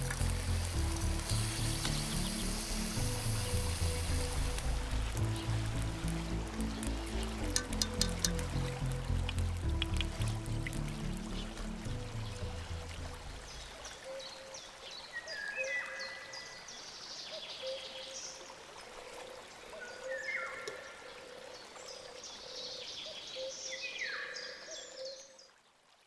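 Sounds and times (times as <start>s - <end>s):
birds chirping: 0.0s - 18.4s
steady background hiss: 0.0s - 24.4s.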